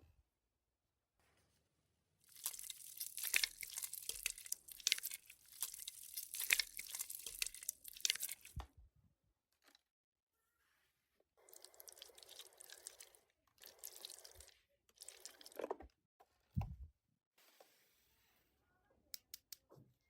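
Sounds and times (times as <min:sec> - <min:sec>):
modelling dough crackling: 0:02.2 - 0:08.6.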